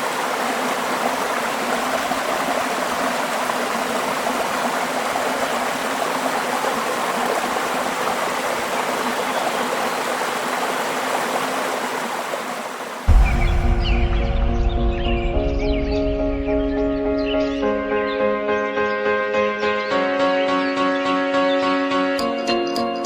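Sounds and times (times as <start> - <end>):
waterfall rushing: 0.0 - 17.9
music with deep bass: 13.1 - 18.0.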